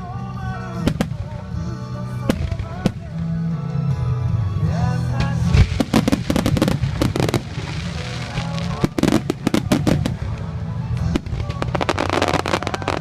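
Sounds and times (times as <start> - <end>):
music playing: 0.0 - 13.0
fireworks bursting: 0.8 - 1.6, 2.2 - 3.2, 5.2 - 13.0.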